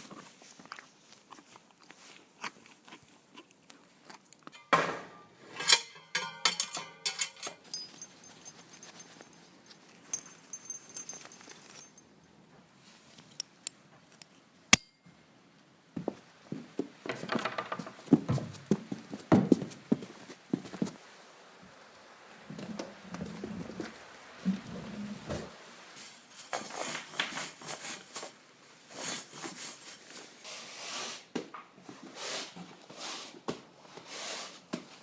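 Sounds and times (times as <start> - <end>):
high metallic ringing: 5.6 - 9.5, 10.1 - 12.1, 14.8 - 15.2
metallic clinking and jangling: 5.7 - 12.1.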